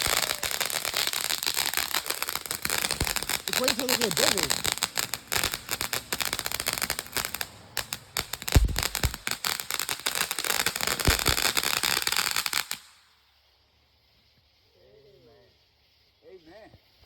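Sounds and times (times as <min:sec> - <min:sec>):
firework pops: 0:00.0 - 0:13.0
firework crackling: 0:00.0 - 0:17.0.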